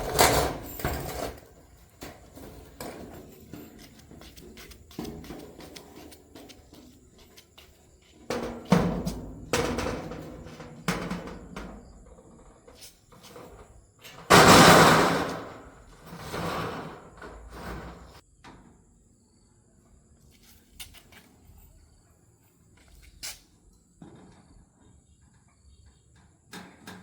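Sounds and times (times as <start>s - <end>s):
knocks and thuds of building work: 0.0s - 18.8s.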